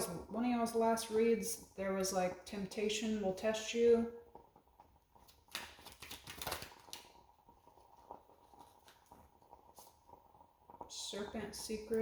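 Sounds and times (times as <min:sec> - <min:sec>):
cards rustling and clicking: 0:05.5 - 0:07.1.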